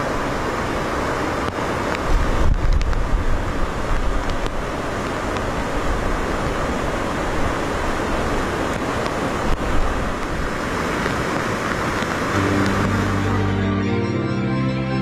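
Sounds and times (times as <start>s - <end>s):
steady rushing noise: 0.0s - 13.6s
music with low held notes: 12.4s - 15.0s.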